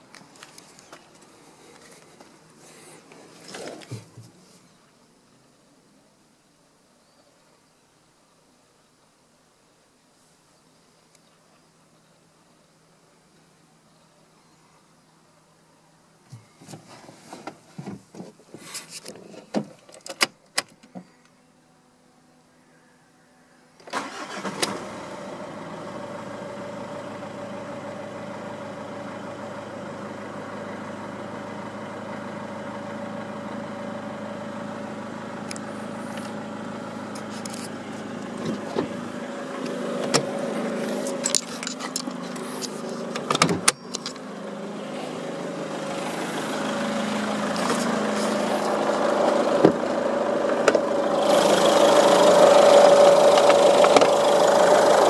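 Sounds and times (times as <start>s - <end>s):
diesel engine starting and idling: 23.8s - 55.0s.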